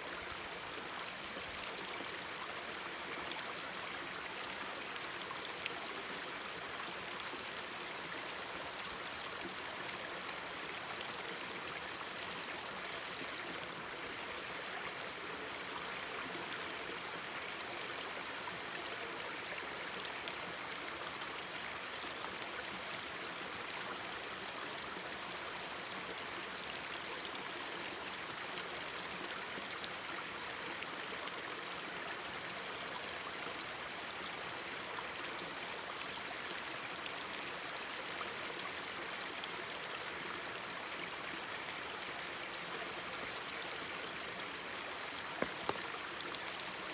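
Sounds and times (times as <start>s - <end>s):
stream babbling: 36.0s - 46.9s.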